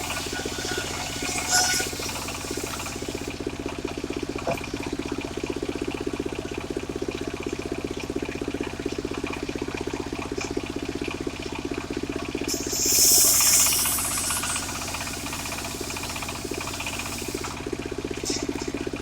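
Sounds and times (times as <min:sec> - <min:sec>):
saw blade cutting wood: 0:00.0 - 0:03.4, 0:12.5 - 0:17.6
saw engine pulsing: 0:00.0 - 0:03.4, 0:12.5 - 0:17.7.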